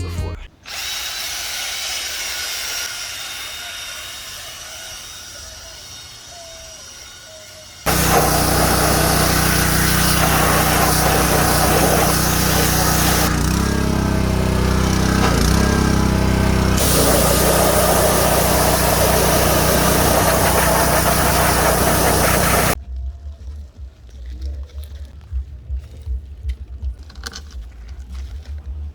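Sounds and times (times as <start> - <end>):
motor running steadily: 7.9 - 22.8.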